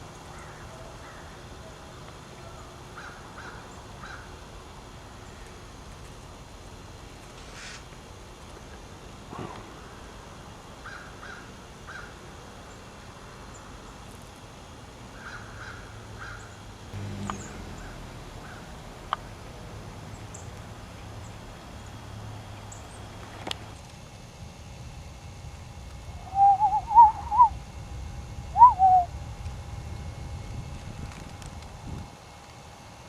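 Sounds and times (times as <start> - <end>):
crows cawing: 0.3 - 1.4, 2.9 - 4.4, 10.8 - 12.2, 15.1 - 16.6, 17.3 - 19.2
low background rumble: 16.8 - 23.8.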